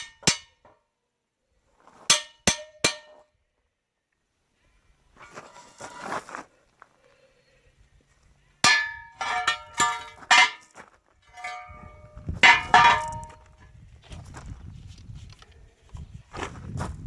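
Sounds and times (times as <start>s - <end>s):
steel parts clanking on metal bench: 8.6s - 10.7s, 11.3s - 13.4s.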